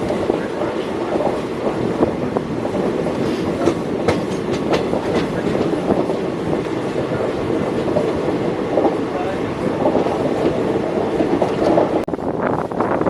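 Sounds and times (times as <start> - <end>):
train rumbling and rattling: 0.0 - 13.0
wheel clicks over rail joints: 2.5 - 12.0.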